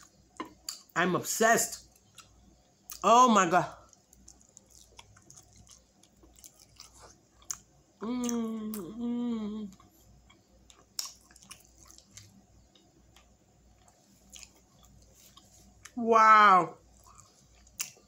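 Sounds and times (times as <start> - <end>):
wet chewing and mouth clicks: 3.9 - 8.9, 9.7 - 16.0, 16.9 - 18.0
person humming mmm: 8.0 - 9.8.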